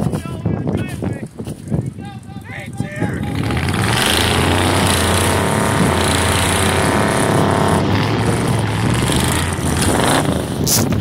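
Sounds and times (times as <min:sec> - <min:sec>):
engine with low exhaust note: 0:02.8 - 0:11.0.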